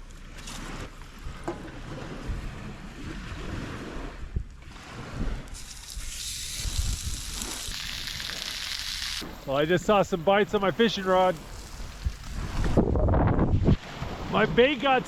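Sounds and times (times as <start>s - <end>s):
wind gusting over microphone: 0.7s - 15.0s
steady high hiss: 5.6s - 11.7s.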